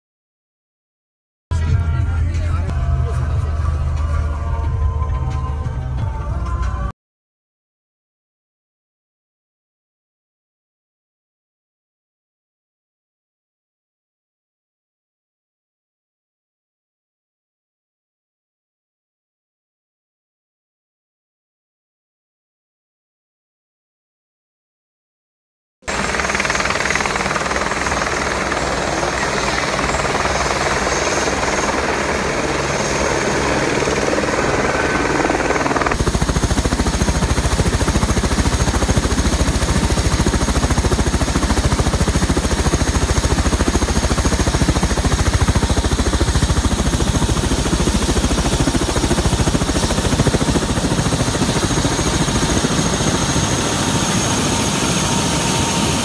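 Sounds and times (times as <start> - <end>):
helicopter rotor and turbine: 25.8 - 56.0.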